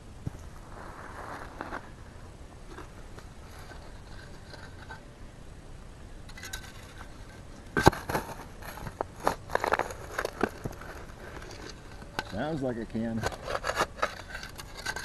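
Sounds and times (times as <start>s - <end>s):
hand tool digging in dirt: 6.3s - 15.0s.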